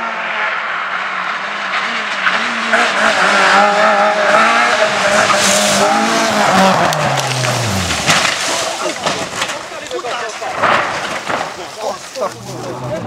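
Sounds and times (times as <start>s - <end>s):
race car engine revving: 0.0s - 9.4s
tyres skidding: 0.1s - 13.0s.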